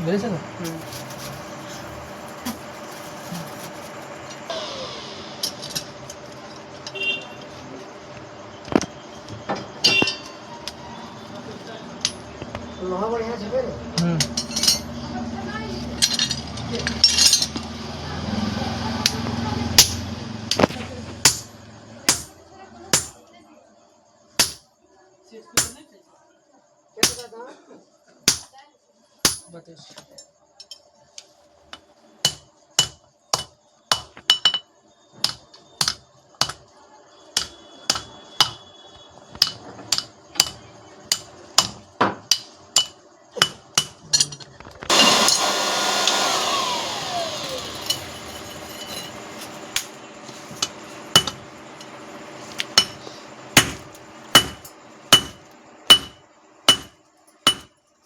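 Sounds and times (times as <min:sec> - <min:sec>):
machine running with whine: 0:00.0 - 0:15.7, 0:44.9 - 0:56.2
hammer striking steel on anvil: 0:19.8 - 0:20.6, 0:21.2 - 0:23.2, 0:24.4 - 0:24.6, 0:27.0 - 0:27.3, 0:28.3 - 0:28.5, 0:29.2 - 0:29.5, 0:32.2 - 0:34.6, 0:35.2 - 0:36.6, 0:37.4 - 0:38.6, 0:39.4 - 0:44.3, 0:50.6 - 0:52.0, 0:52.6 - 0:57.8.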